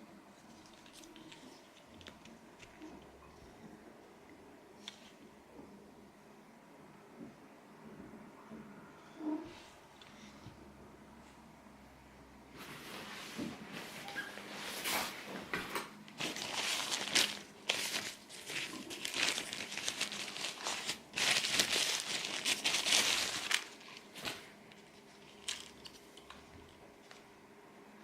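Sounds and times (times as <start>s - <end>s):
packaging crinkling: 0.4s - 3.0s, 16.1s - 27.2s.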